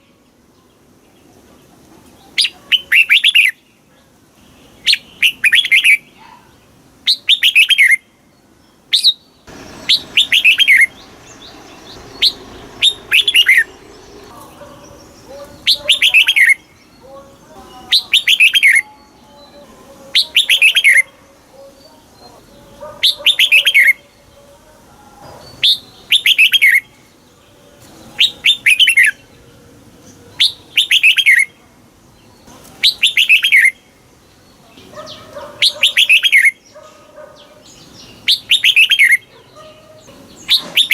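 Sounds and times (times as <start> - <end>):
bird singing falling notes: 8.9 - 17.1, 40.3 - 40.9.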